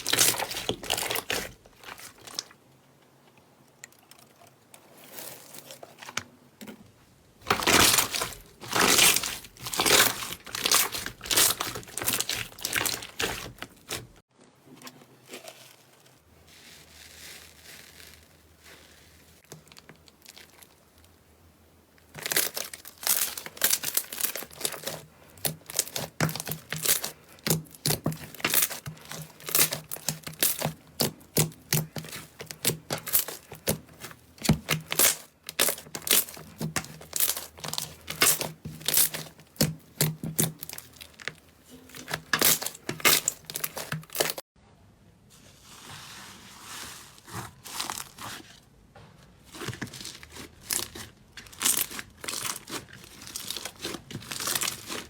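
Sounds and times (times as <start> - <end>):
slime crackling and popping: 0.0 - 2.6, 7.4 - 14.2, 22.1 - 41.3, 42.0 - 44.4, 49.5 - 55.0
slime squishing: 0.0 - 2.6, 7.4 - 14.2, 22.0 - 44.4, 45.6 - 48.7, 49.4 - 55.0.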